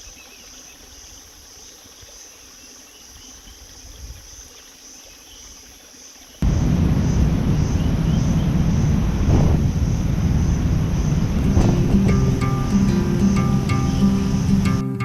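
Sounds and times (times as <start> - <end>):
insect chirps: 0.0 - 14.8
loud low rushing noise: 6.4 - 14.8.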